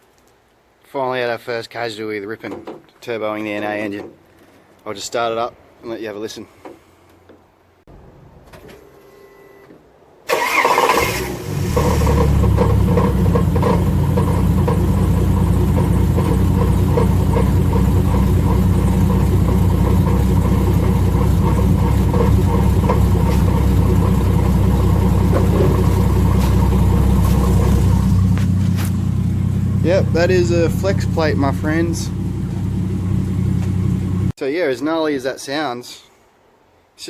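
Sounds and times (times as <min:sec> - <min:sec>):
engine starter cranking: 0:10.3 - 0:14.2
engine idling with metallic rattle: 0:10.4 - 0:34.3.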